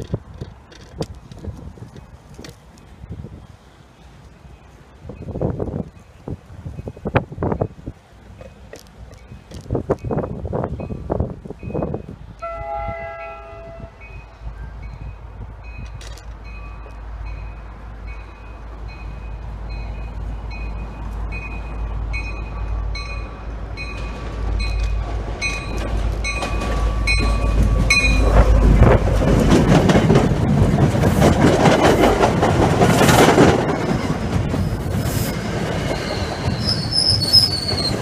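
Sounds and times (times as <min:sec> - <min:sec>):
wheels clattering over rail joints: 0:00.0 - 0:02.9, 0:18.1 - 0:38.0
diesel locomotive passing: 0:00.0 - 0:38.0
train bell ringing: 0:11.6 - 0:28.9
wheels squealing: 0:32.9 - 0:38.0.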